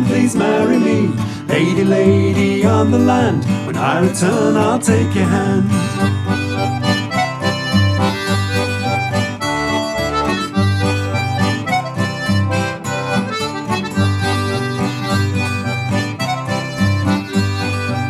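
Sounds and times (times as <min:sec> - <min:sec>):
strummed acoustic guitar: 0:00.0 - 0:18.0.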